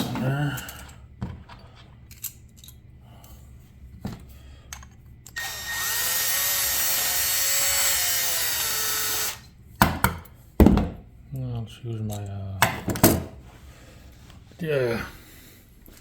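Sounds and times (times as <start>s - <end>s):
electric drill grinding metal: 5.3s - 9.5s.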